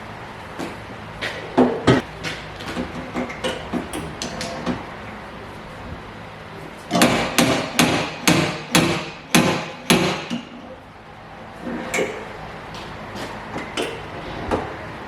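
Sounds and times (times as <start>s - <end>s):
hammer striking: 6.9s - 10.6s.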